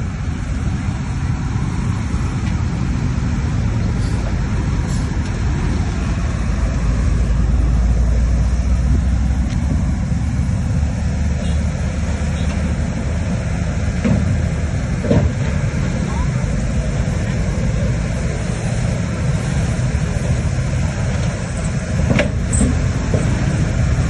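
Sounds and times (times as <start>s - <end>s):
diesel engine rumble: 0.0s - 24.0s.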